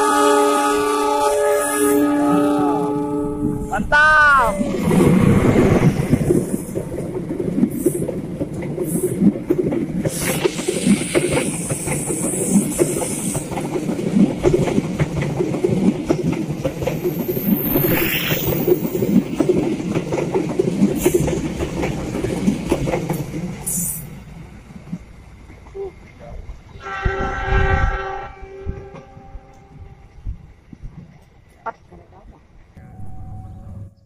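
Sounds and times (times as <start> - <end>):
steel wheels rumbling on rails: 0.0 - 32.0
wheels clacking over rail joints: 6.1 - 17.6, 18.8 - 23.7.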